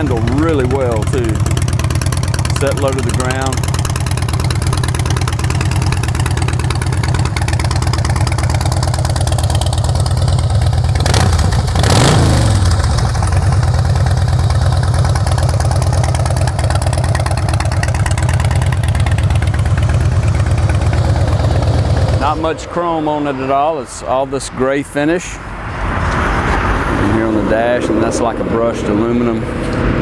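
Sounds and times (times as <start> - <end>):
motorcycle engine idling: 0.0 - 22.9
engine throttle blip: 0.0 - 23.4.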